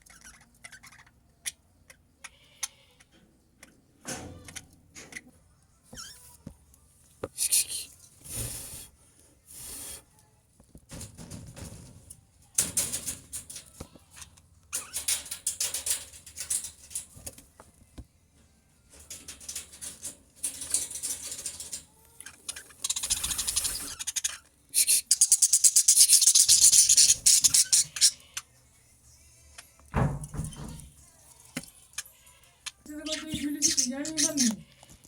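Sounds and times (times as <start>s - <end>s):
budgerigars chattering: 22.3s - 28.4s, 32.9s - 34.6s.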